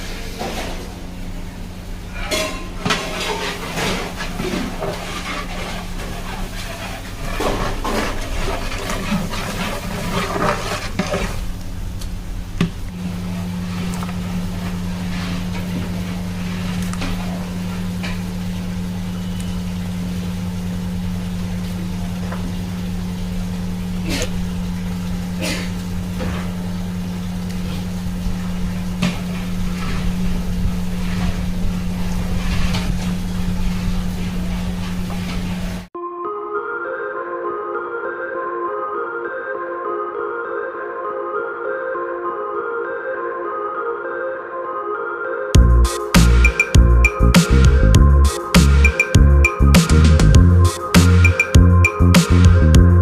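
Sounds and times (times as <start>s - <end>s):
steady low hum: 0.0s - 35.9s, 45.6s - 53.0s
scraping and clatter in pot: 2.1s - 11.6s
low rumble: 45.6s - 48.3s, 49.2s - 53.0s.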